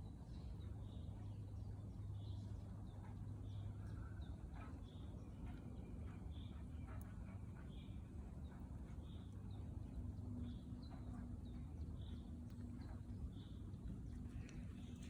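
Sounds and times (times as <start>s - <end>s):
faint low rumble: 5.2s - 15.0s.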